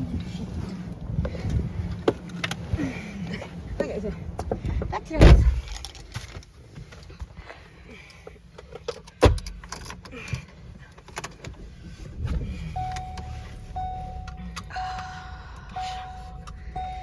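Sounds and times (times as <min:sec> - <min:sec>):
car door shutting: 0:05.1 - 0:05.8, 0:12.1 - 0:17.0
car engine running: 0:11.3 - 0:17.0
warning chime beeping: 0:12.6 - 0:17.0.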